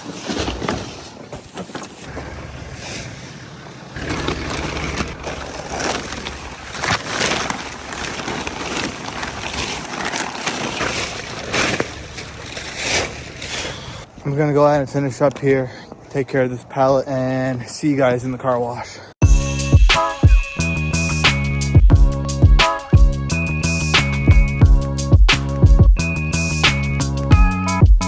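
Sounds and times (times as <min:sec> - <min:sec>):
plastic bags crinkling: 0:02.0 - 0:14.0.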